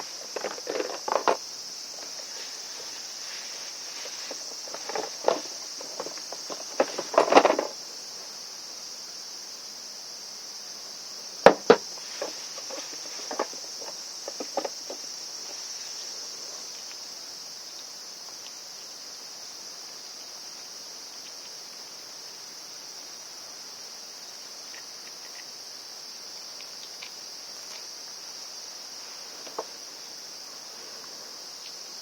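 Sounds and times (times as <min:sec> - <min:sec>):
insect chirring: 0:00.0 - 0:32.0
parts clicking and knocking: 0:00.3 - 0:01.4, 0:04.3 - 0:07.7, 0:11.5 - 0:15.0.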